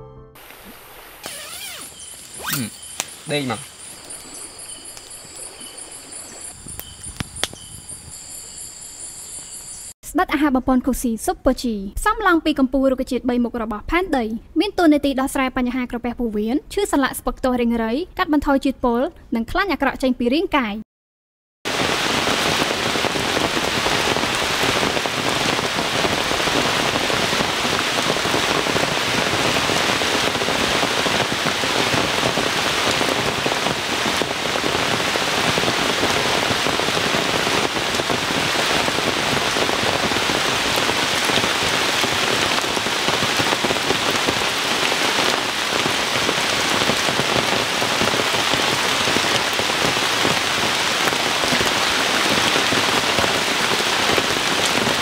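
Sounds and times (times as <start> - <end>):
rain falling on leaves: 0.5 - 9.9, 21.7 - 55.0.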